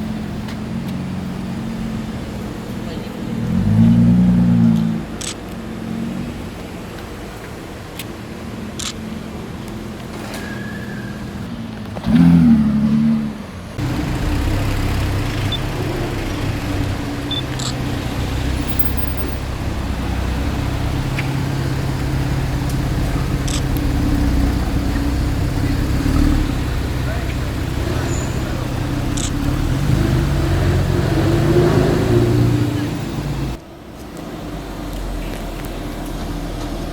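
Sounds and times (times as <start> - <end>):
car engine revving: 0.0 - 33.7
low engine drone: 12.0 - 36.9.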